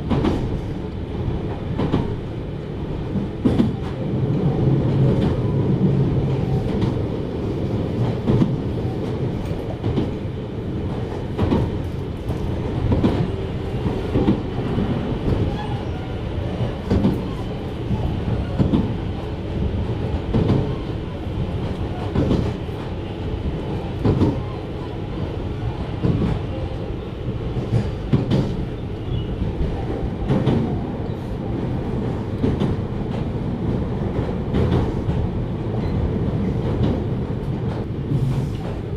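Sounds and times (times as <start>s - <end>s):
train interior low rumble: 0.0s - 38.9s.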